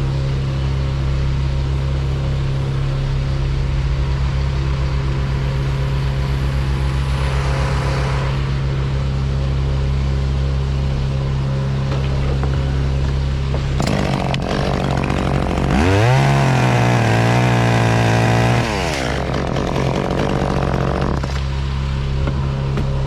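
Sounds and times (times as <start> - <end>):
engine running steadily: 0.0 - 23.0.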